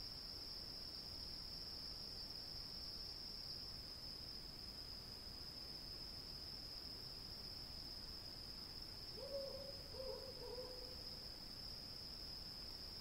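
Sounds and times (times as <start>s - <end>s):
crickets chirping: 0.0s - 13.0s
owl hooting: 9.2s - 10.9s.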